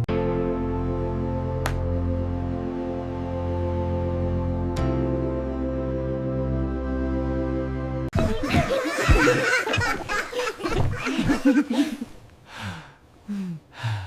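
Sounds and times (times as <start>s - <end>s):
background music: 0.0s - 10.0s
hearty laughter: 8.2s - 12.2s.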